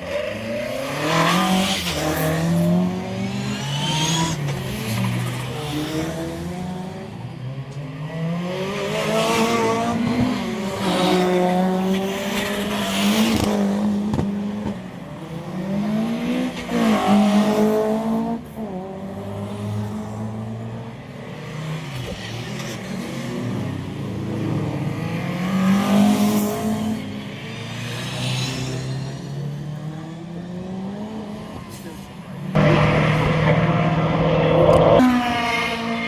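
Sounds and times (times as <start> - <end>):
car engine revving hard: 32.5 - 36.0.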